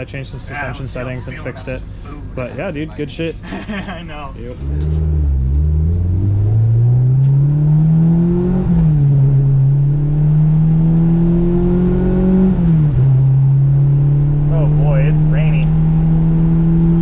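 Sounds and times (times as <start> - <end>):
car engine accelerating: 4.0 - 17.0.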